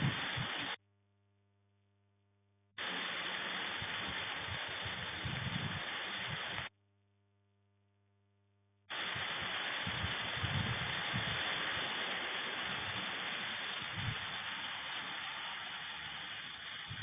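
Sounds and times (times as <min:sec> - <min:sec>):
rain falling: 0:00.0 - 0:00.8, 0:02.8 - 0:06.7, 0:08.9 - 0:17.0.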